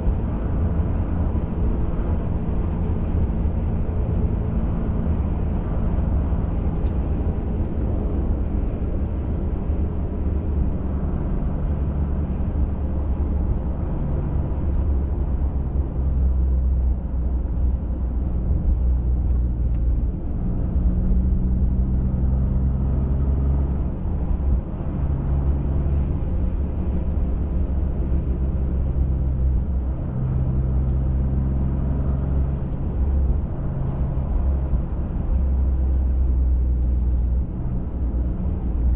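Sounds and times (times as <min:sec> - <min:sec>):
truck engine drone: 0:00.0 - 0:19.2
tyre and road noise: 0:00.0 - 0:38.9.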